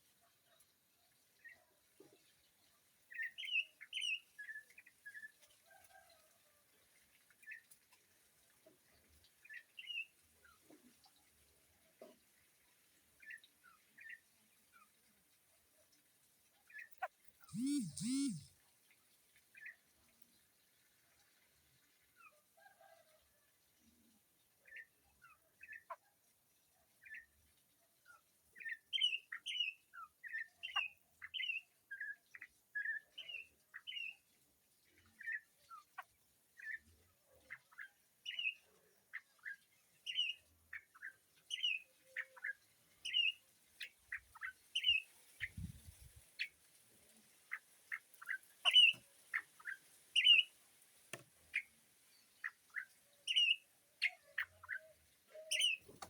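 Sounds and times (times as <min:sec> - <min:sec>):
birds chirping: 0:17.5 - 0:18.5.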